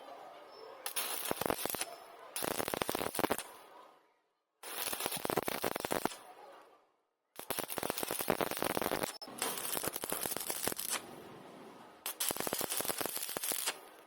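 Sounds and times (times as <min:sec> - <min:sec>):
arc welding crackling: 0:00.9 - 0:03.5, 0:04.6 - 0:06.2, 0:07.4 - 0:11.1, 0:12.0 - 0:14.0.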